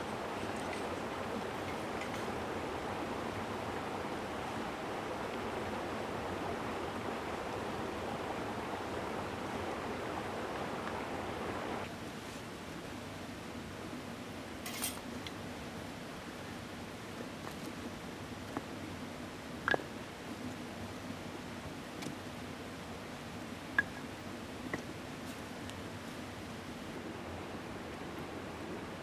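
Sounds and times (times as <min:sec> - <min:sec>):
mountain stream rushing: 0:00.0 - 0:11.9, 0:15.8 - 0:29.0.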